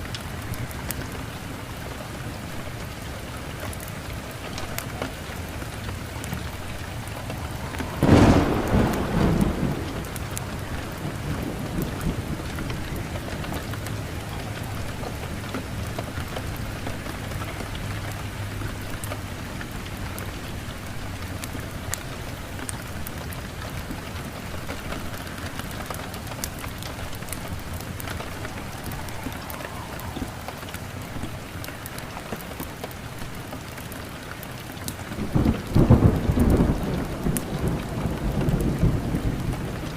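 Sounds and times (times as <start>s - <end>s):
steady rain: 0.0s - 39.9s
thunder clap: 5.6s - 17.0s, 24.7s - 32.1s, 35.2s - 39.9s.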